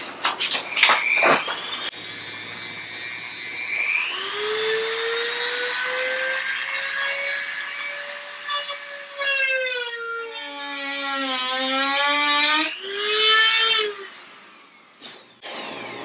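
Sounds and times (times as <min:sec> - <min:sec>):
rotary tool cutting plastic: 0:03.7 - 0:16.0.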